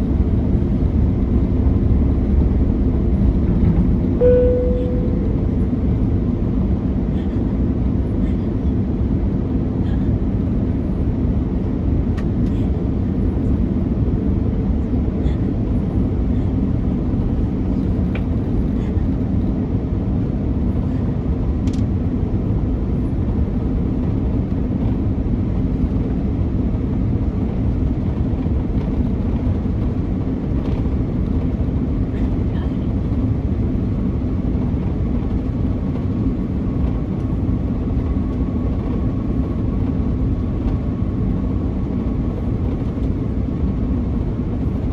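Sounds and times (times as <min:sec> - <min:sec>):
airplane cabin roar: 0:00.0 - 0:44.9
faint high steady tone: 0:04.2 - 0:05.7.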